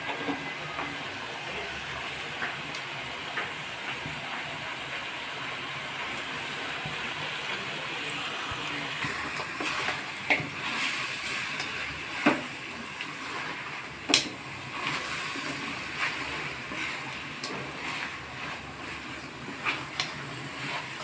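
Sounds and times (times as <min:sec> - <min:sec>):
food sizzling in a pan: 0:00.0 - 0:21.0
spatula stirring and scraping: 0:08.4 - 0:21.0.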